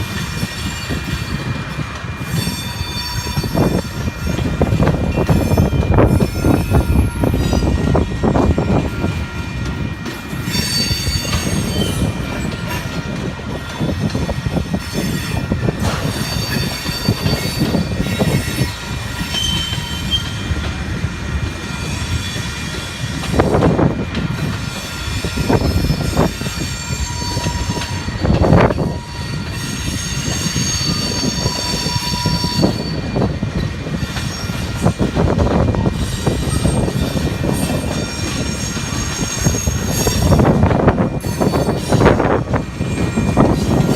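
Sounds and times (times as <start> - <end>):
train wheels rumbling on rails: 0.0 - 43.9
high-pitched wheel squeal: 2.2 - 4.5, 10.5 - 12.8, 16.0 - 20.5, 25.0 - 33.3, 36.0 - 40.5.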